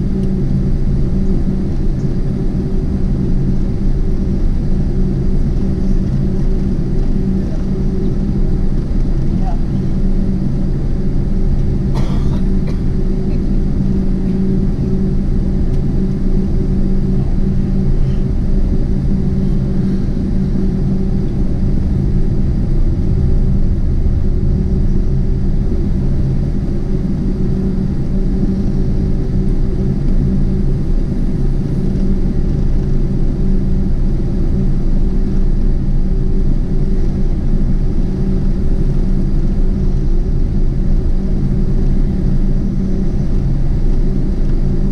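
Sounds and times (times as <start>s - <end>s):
aircraft cabin rumble and hum: 0.0s - 44.9s.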